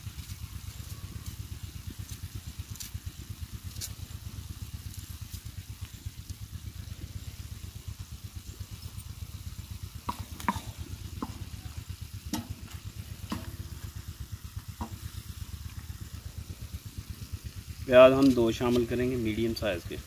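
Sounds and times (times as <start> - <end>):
low throbbing rumble: 0.0 - 20.0
spoon knocking and scraping pan: 10.1 - 11.5.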